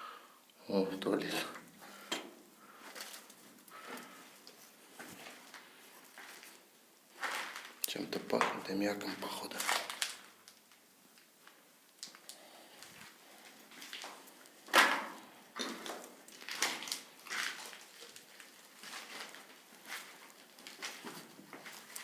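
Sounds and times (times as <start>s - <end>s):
footsteps and scuffs on debris: 1.9s - 10.2s, 15.7s - 22.0s.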